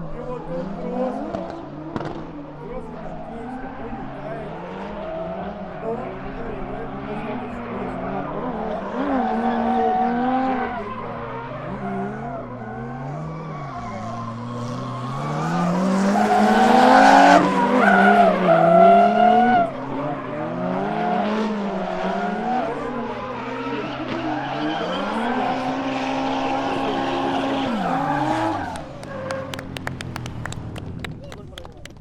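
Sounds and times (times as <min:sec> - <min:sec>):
car engines revving: 0:00.0 - 0:32.0
tyre screech: 0:08.8 - 0:19.7, 0:22.3 - 0:29.8.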